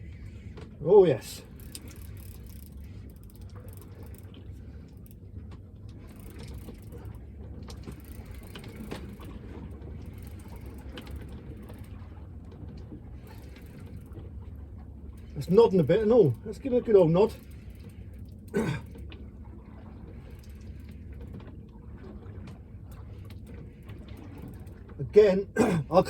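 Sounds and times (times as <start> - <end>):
steady low rumble: 0.0 - 13.4
fishing reel gears whirring: 0.0 - 26.0.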